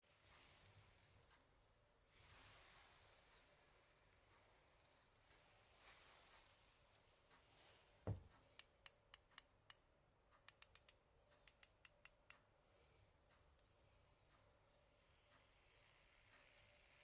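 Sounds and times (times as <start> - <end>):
soft thump: 8.0 - 8.3
sharp metallic clicks of fishing reel: 10.5 - 12.4.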